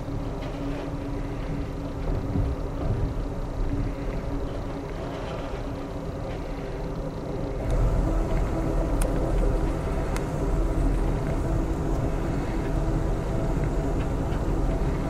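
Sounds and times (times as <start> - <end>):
low hum: 0.0 - 15.0
train wheels rumbling on rail: 0.0 - 15.0.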